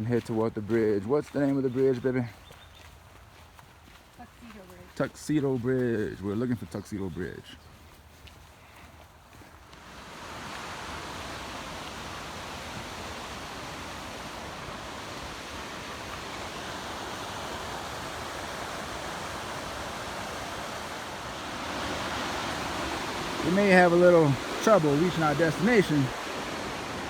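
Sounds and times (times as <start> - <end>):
creek water rushing: 0.0 - 27.0.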